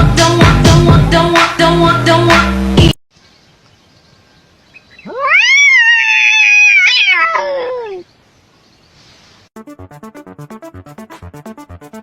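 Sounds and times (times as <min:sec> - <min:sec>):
cat meowing: 0:05.0 - 0:08.0.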